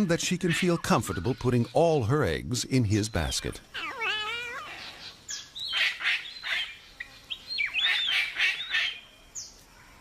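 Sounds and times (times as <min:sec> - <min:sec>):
cockatoos screeching: 0:03.7 - 0:05.2.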